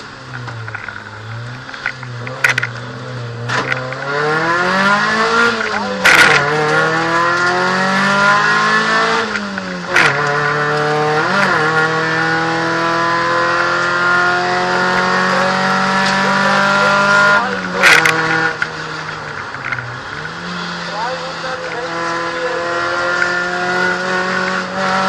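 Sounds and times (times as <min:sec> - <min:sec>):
rally car engine through gears: 0:00.0 - 0:25.0
sharp gear shift clicks: 0:05.5 - 0:07.6, 0:09.2 - 0:11.6, 0:17.8 - 0:19.9.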